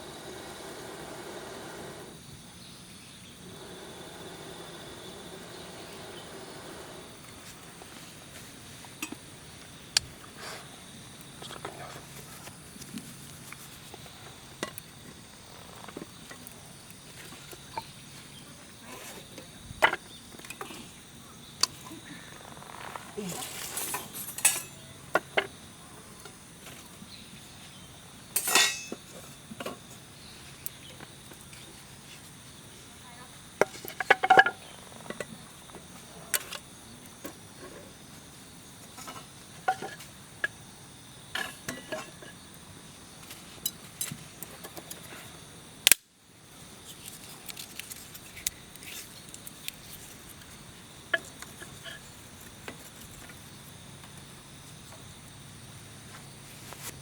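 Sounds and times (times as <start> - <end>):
high insect trill: 0.0 - 57.0
metal clinks and knocks: 23.7 - 24.8, 28.4 - 29.0.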